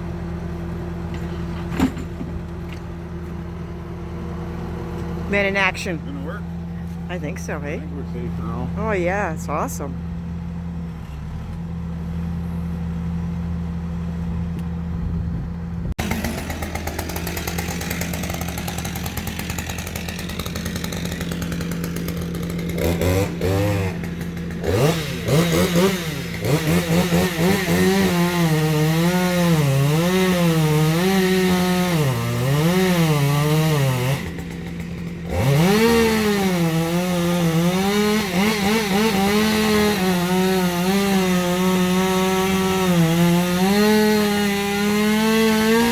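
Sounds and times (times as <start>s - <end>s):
chainsaw revving in wood: 16.0s - 45.9s.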